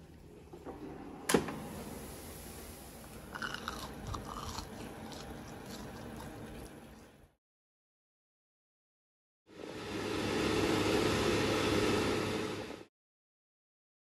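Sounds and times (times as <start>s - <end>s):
crisp crunching of chicken nuggets: 3.4s - 6.7s.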